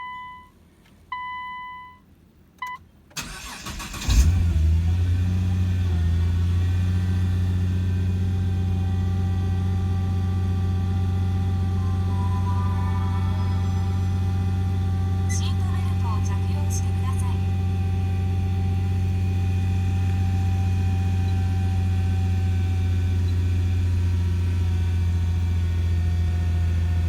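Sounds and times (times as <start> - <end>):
car starter cranking: 3.1 - 6.6
car engine revving and idling: 3.2 - 27.0.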